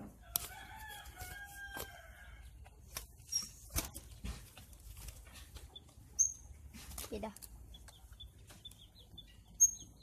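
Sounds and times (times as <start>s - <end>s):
rooster crowing: 0.2s - 2.5s.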